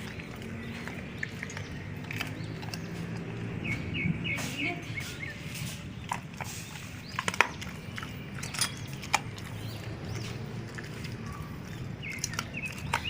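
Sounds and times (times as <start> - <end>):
dogs crunching bones: 0.0 - 4.0, 5.6 - 13.0
birds chirping faintly: 0.0 - 13.0.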